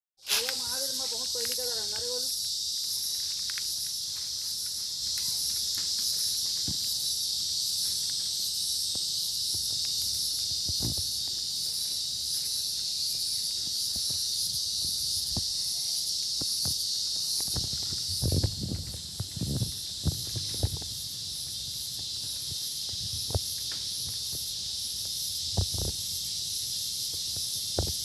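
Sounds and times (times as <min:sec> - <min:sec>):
insects chorus: 0:00.2 - 0:28.0.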